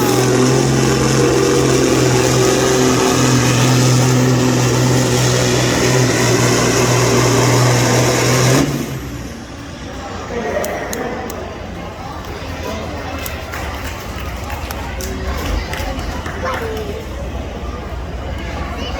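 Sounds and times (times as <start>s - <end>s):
diesel truck engine revving hard: 0.0s - 12.0s.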